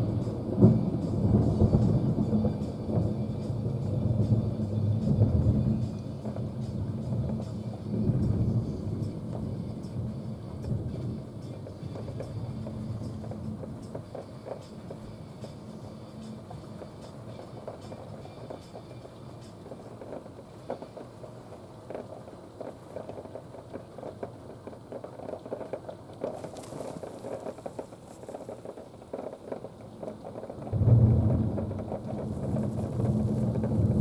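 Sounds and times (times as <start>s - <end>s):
thunder rumble: 0.0s - 18.4s, 26.2s - 34.0s
heavy rain pattering: 0.0s - 34.0s.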